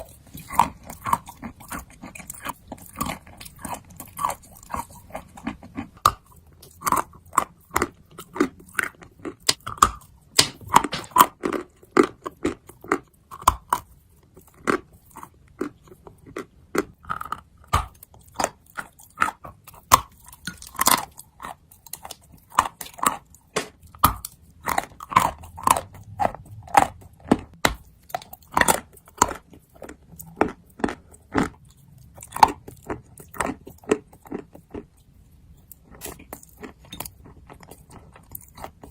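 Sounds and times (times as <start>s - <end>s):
person chewing crunchy clay: 0.0s - 38.9s.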